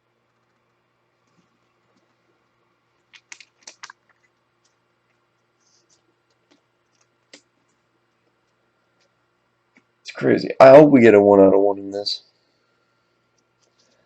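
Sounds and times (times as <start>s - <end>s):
trading cards and packaging clicking: 3.0s - 4.8s.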